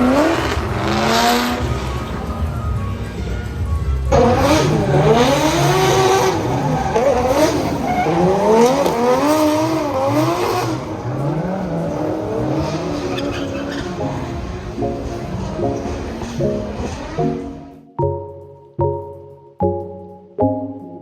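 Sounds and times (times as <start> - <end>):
car engine revving: 0.0 - 17.8
tyre squeal: 4.2 - 9.5, 12.6 - 14.6.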